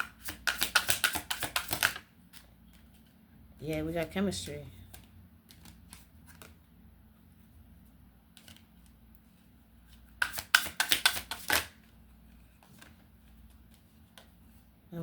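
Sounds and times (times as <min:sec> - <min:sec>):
cards flicking: 0:00.0 - 0:02.0, 0:10.1 - 0:11.8
cards snapping while shuffled: 0:00.0 - 0:02.5, 0:10.1 - 0:11.8.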